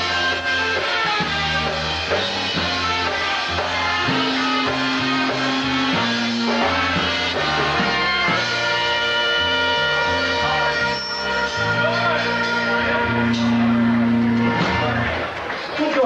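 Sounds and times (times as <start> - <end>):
bass line: 0.0 - 15.4
drum kit beat: 0.0 - 15.4
polka band playing: 0.0 - 16.0.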